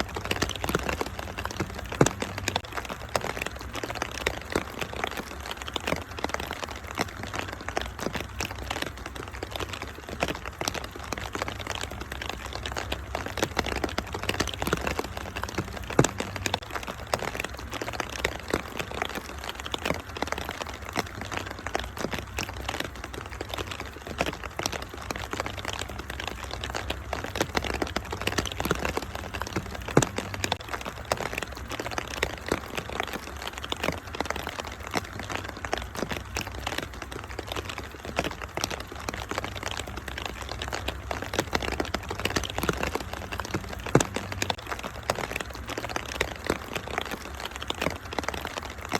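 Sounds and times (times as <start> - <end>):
steady hiss of rain: 0.0 - 48.9
wood fire crackling: 0.0 - 48.9.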